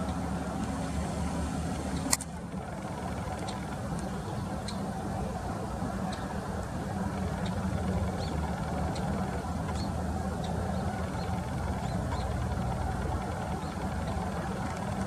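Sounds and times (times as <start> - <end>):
low engine rumble: 0.0 - 15.0
small bird chirping: 7.4 - 12.5.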